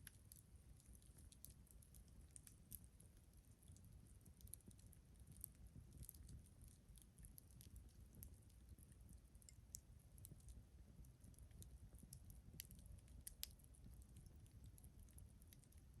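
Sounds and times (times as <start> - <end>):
low steady rumble: 0.0 - 16.0
campfire crackling and popping: 3.7 - 16.0.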